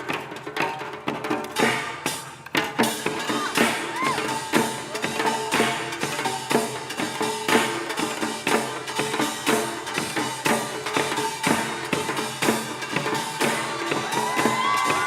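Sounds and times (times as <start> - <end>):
drums and gongs ensemble: 0.0 - 15.0.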